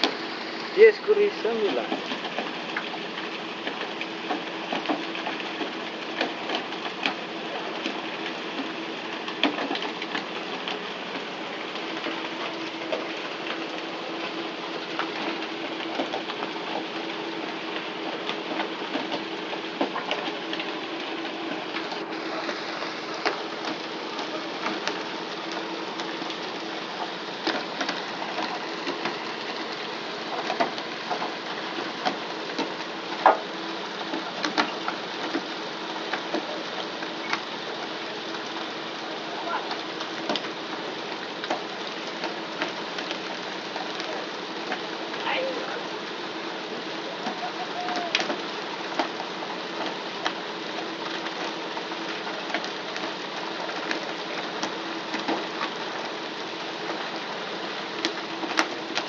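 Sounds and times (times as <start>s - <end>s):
rushing hiss of water spray: 0.0s - 2.2s.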